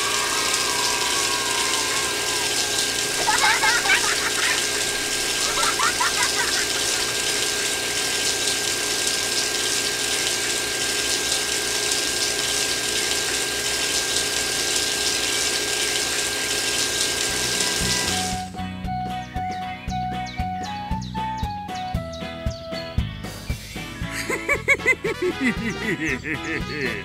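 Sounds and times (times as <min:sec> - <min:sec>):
water jet hissing: 0:00.0 - 0:18.5
water pump whining: 0:00.0 - 0:18.6.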